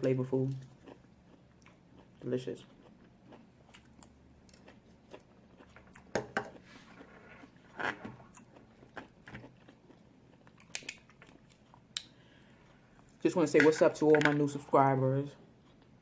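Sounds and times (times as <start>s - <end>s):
person chewing food: 0.4s - 13.2s, 15.4s - 16.0s
food crunches: 0.5s - 12.1s.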